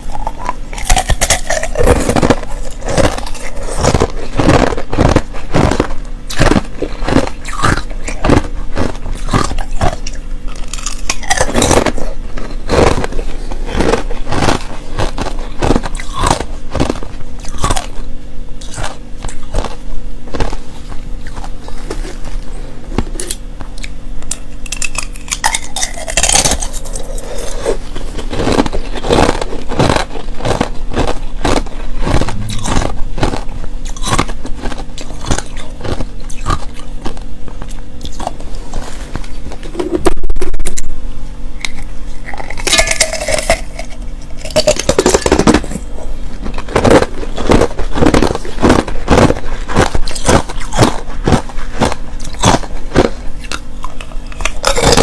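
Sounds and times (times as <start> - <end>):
crunching and chewing ice: 0.0 - 41.0, 41.6 - 55.0
loud distorted burst: 32.0 - 34.3.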